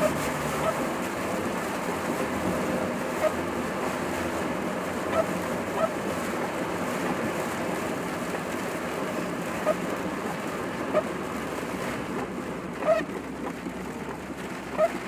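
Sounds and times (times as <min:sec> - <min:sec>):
road and wind noise in car: 0:00.0 - 0:15.0.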